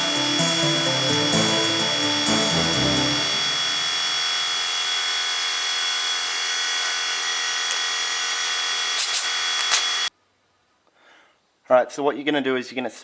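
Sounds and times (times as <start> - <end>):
electric power tool whining: 0.0 - 10.1.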